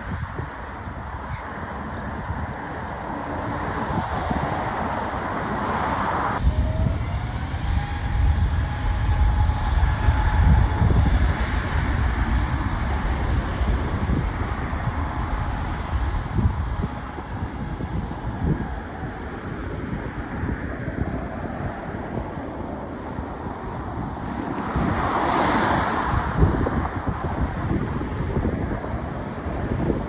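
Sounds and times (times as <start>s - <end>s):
aircraft engine rumble: 0.0s - 30.0s
wind on microphone: 0.0s - 30.0s
faint whine rising in pitch: 6.4s - 30.0s.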